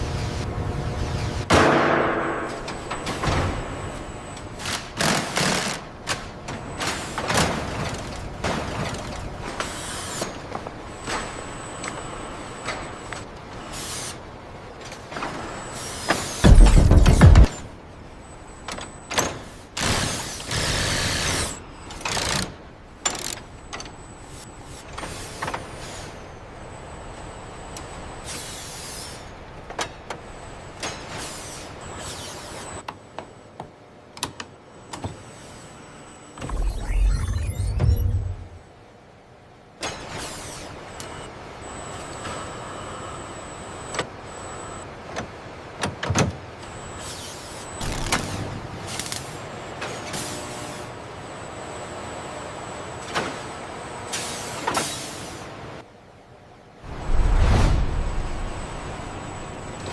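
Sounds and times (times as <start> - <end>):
steady machinery background: 0.0 - 59.9
sharp clicks and clanks: 16.4 - 17.7.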